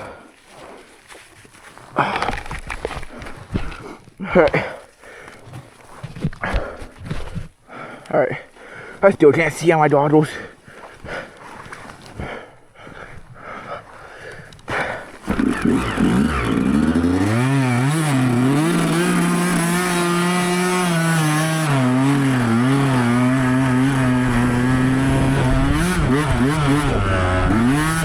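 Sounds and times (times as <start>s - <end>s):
dirt bike engine revving: 15.2s - 28.0s.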